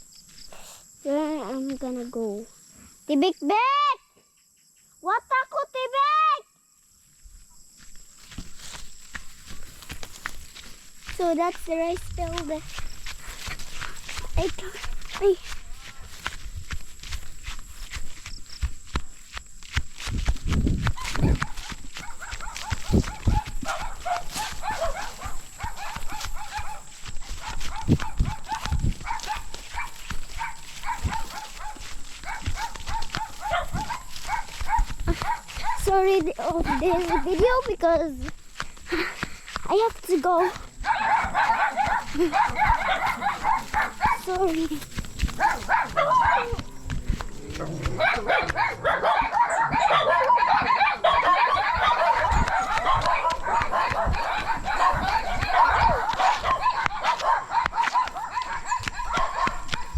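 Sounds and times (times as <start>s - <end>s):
footsteps on dirt path: 0.0s - 3.3s, 6.8s - 59.9s
farm animals calling: 21.0s - 35.8s, 40.2s - 59.9s.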